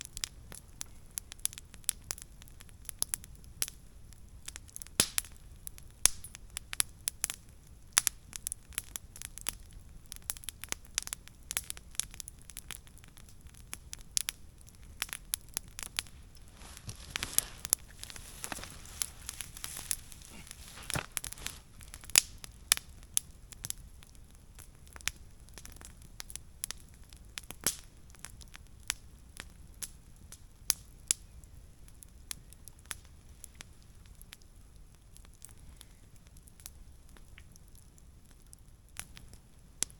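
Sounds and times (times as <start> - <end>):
wood fire crackling: 0.0 - 39.9
sharp pops of fire: 4.5 - 31.3.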